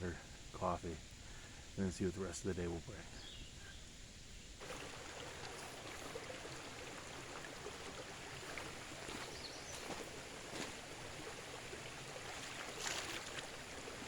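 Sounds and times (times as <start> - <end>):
creek flowing: 4.6 - 14.0.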